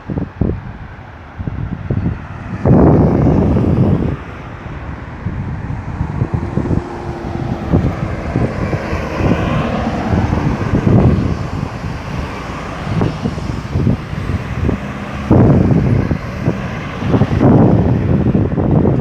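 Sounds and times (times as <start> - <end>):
road traffic: 0.0 - 19.0
wind buffeting microphone: 0.0 - 19.0
vehicle passing close: 1.4 - 19.0.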